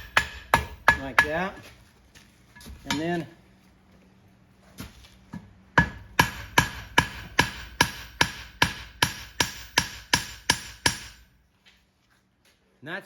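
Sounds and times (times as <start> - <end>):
hammer striking horseshoe on anvil: 0.0 - 1.6, 2.8 - 3.2, 5.8 - 11.3.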